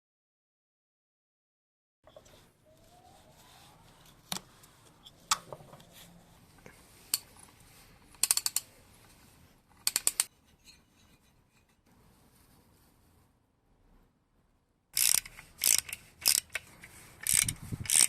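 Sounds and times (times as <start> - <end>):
sharp metallic clicks from hand tools: 8.1 - 8.7, 9.8 - 10.3, 15.0 - 18.0.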